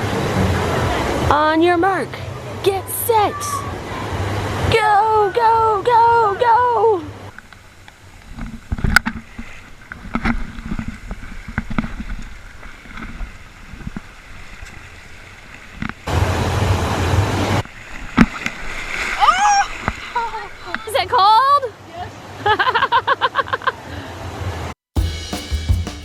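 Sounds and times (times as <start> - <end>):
loud rush of noise: 0.0 - 6.2, 16.1 - 17.7
pool water splashing: 0.0 - 24.5.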